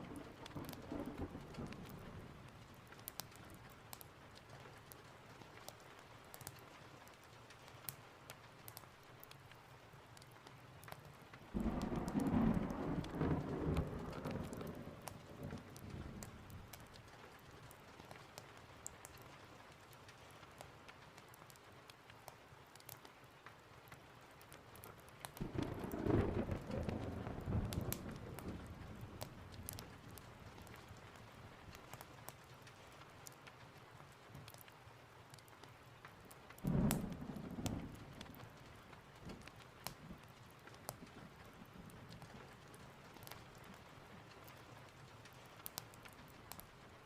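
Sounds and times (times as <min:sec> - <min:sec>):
thunder rumbling: 0:00.0 - 0:02.4, 0:11.6 - 0:16.8, 0:25.4 - 0:31.0, 0:36.6 - 0:38.6
steady rain: 0:00.0 - 0:47.0.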